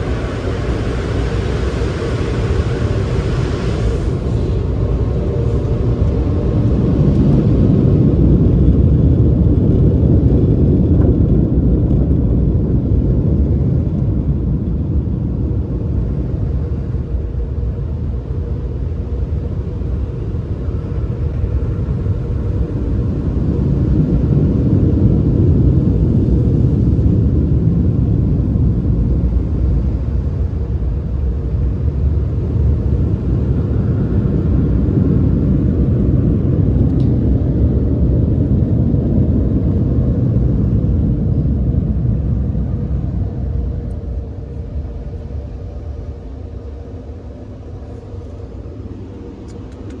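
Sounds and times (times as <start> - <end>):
car wash machinery rumbling: 0.0 - 50.0.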